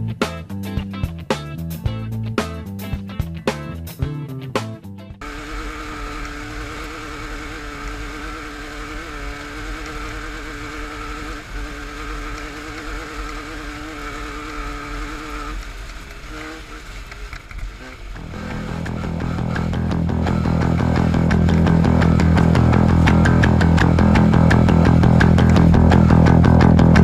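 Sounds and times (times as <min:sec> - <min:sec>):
rock music with guitar: 0:00.0 - 0:06.2, 0:18.2 - 0:27.0
race vehicle engine revving: 0:05.2 - 0:27.0.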